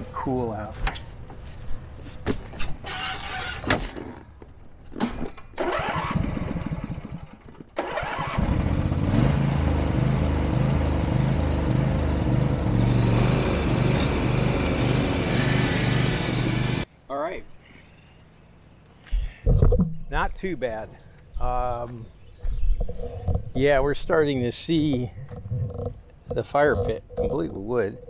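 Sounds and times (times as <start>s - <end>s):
small petrol engine cranking and running: 2.8s - 3.7s, 5.6s - 16.8s.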